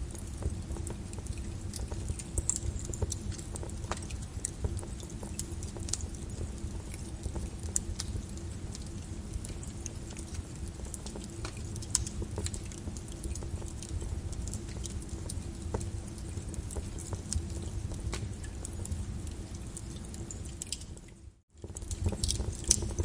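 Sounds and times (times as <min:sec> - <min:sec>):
lava crust crackling: 0:00.0 - 0:23.0.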